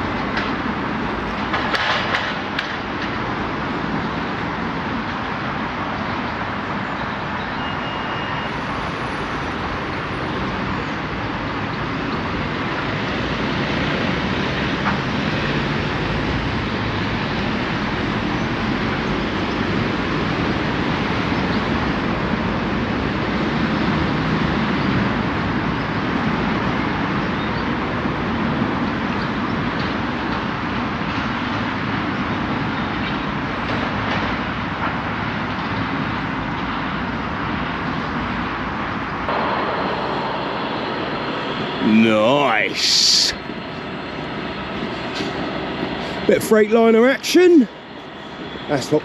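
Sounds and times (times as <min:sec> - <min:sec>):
freight train passing: 0:36.9 - 0:49.0.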